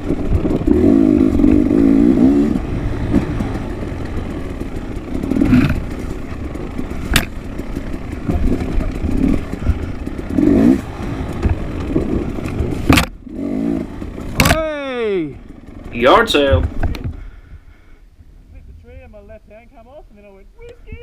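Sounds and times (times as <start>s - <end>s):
clatter and scraping: 0.0s - 14.6s
dirt bike engine revving: 0.0s - 17.4s.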